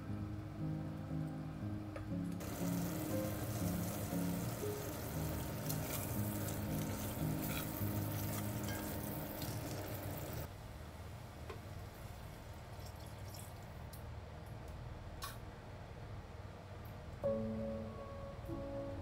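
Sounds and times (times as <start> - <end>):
onions sizzling in a pot: 2.4 - 10.5
spatula scraping and tapping: 5.7 - 6.2, 6.8 - 9.1.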